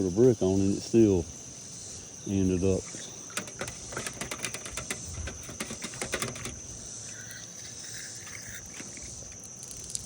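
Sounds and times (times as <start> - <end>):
crickets chirring: 0.0 - 10.0
quick irregular clicks and knocks: 3.3 - 6.6.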